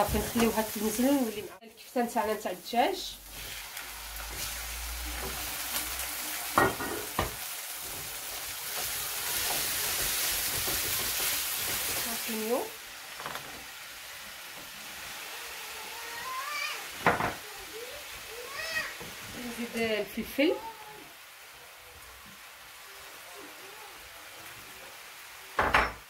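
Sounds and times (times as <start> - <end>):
food sizzling in a frying pan: 0.0 - 26.0
wooden spoon stirring: 7.1 - 12.5.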